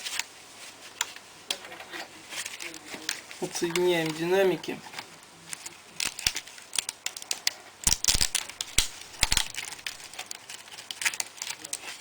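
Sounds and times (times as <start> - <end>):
plastic laptop parts clicking: 5.0 - 12.0.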